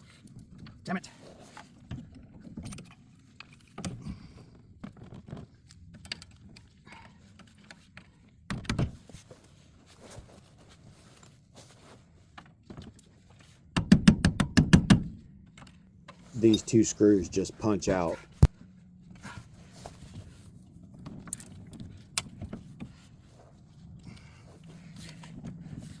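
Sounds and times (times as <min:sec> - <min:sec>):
hand tools clinking on metal: 0:16.4 - 0:18.1.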